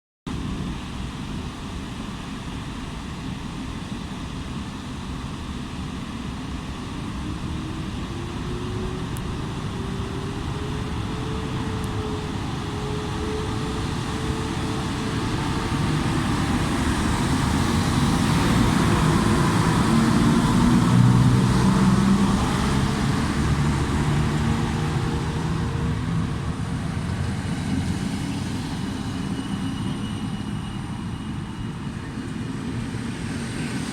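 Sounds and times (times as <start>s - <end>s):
low rumble of train: 0.3s - 33.9s
electric locomotive motors whining: 7.1s - 33.2s.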